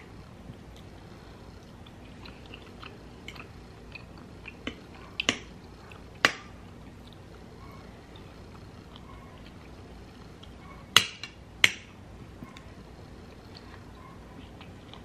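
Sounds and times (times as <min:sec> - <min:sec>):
chewing with wet mouth clicks: 0:01.6 - 0:07.4, 0:08.1 - 0:09.7, 0:13.3 - 0:15.0.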